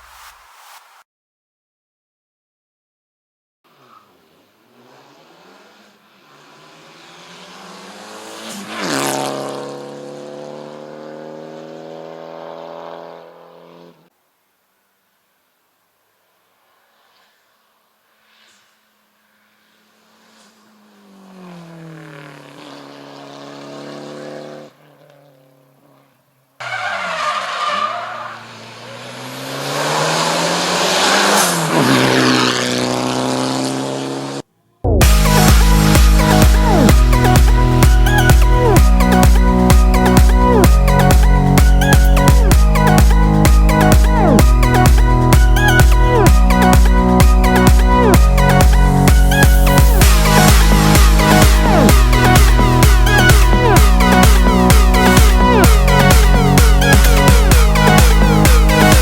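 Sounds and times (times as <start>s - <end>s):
electronic dance music: 0.0s - 1.0s, 34.9s - 59.0s
race car engine at high revs: 3.7s - 14.1s, 19.0s - 26.0s, 26.6s - 59.0s
race car passing by: 3.7s - 14.1s, 16.6s - 34.4s.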